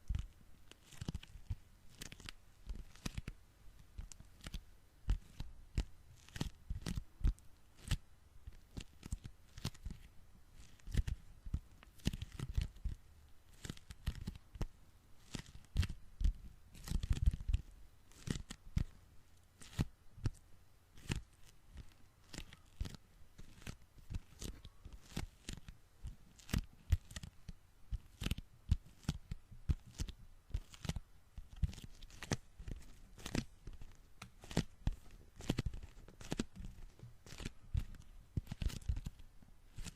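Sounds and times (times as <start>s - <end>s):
sticky fingers peeling apart: 0.8s - 3.3s, 12.0s - 18.6s, 21.0s - 27.4s, 28.0s - 39.9s.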